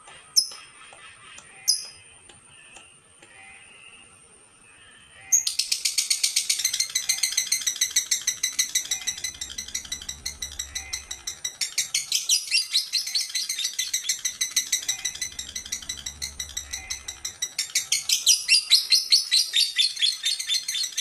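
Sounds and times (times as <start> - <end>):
lovebird chirping and chattering: 5.3 - 21.0.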